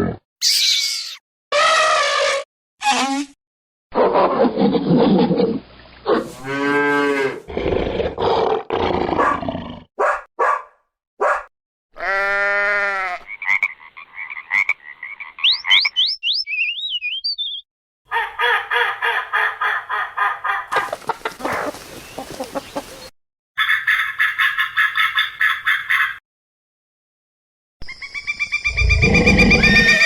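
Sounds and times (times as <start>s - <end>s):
growl-like animal calls: 4.0s - 9.9s, 28.7s - 30.0s
high whistling chirps: 15.5s - 17.6s
drawn-out pitched animal calls: 20.7s - 23.1s, 28.8s - 30.0s.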